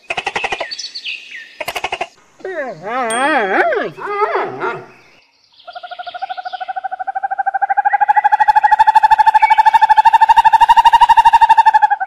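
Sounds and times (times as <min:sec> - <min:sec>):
bird call with wavering pitch: 0:02.5 - 0:05.0, 0:05.6 - 0:12.0.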